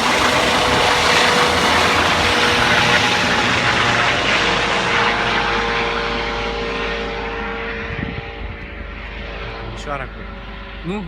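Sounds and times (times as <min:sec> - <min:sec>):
helicopter rotor and turbine whine: 0:00.0 - 0:11.0.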